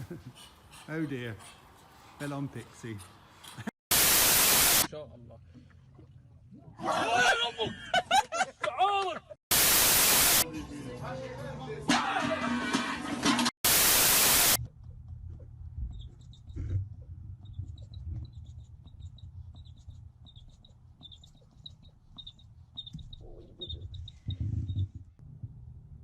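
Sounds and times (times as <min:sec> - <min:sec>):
loud static hiss: 0:03.9 - 0:04.9, 0:09.5 - 0:10.4, 0:13.6 - 0:14.6
small animal squeaking: 0:15.8 - 0:24.9.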